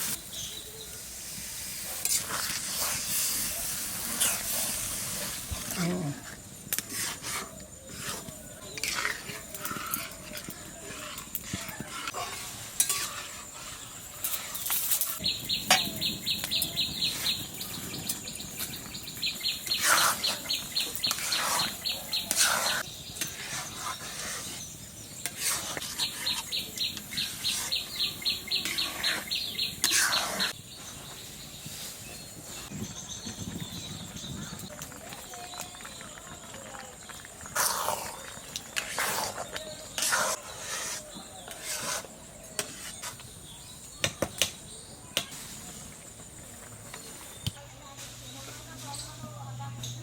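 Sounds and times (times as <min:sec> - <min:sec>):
metal utensil scraping pot: 0:01.9 - 0:18.8, 0:19.4 - 0:30.6, 0:37.6 - 0:43.2.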